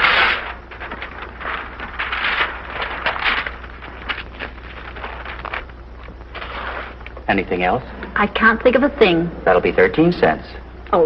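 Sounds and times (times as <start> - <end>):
wrapping paper rustling: 0.0 - 7.2
film soundtrack hum and crackle: 0.0 - 11.0.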